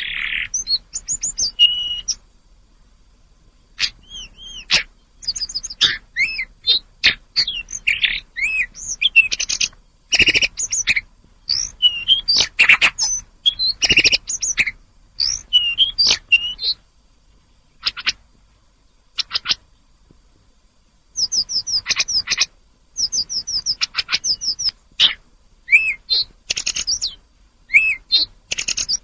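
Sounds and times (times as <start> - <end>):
bird chirping and whistling: 0.0 - 2.2, 3.8 - 16.8, 21.2 - 29.0.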